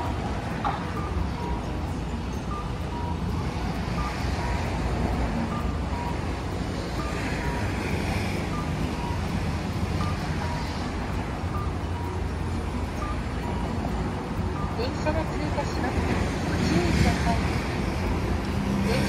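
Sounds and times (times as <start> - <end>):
low rumble of trams: 0.0 - 19.0
two-tone electronic beep: 0.6 - 10.9, 14.5 - 17.6.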